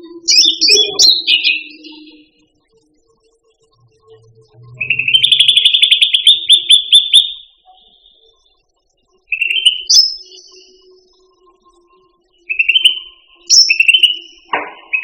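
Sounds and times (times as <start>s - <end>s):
bird singing fast trill: 0.2s - 2.3s, 4.8s - 8.3s, 9.3s - 10.9s, 12.4s - 15.0s.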